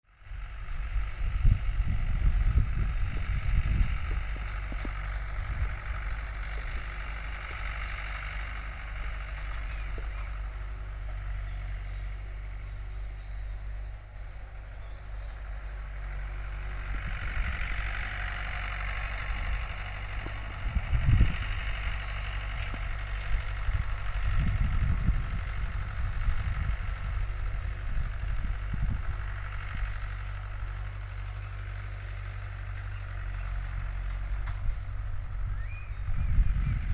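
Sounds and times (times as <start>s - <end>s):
tractor engine running: 0.0s - 36.9s.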